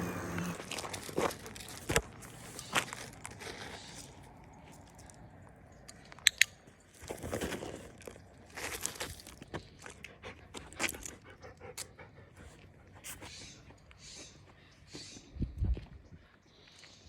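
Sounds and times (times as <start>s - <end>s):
dog chewing and crunching: 0.4s - 5.3s, 7.0s - 12.6s.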